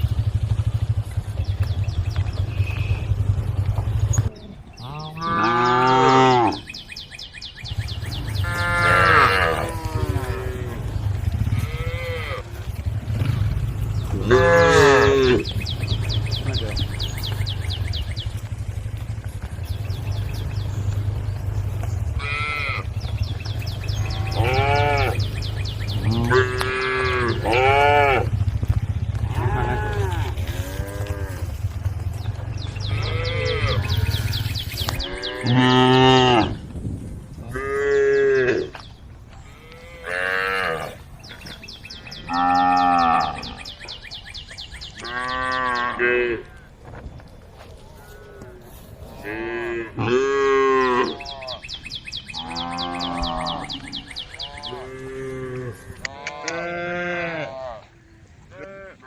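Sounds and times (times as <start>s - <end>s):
low rumble: 0.0s - 40.1s
cows mooing: 2.4s - 6.8s, 8.0s - 36.6s, 37.4s - 44.0s, 44.9s - 46.7s, 47.9s - 51.7s, 52.3s - 59.0s.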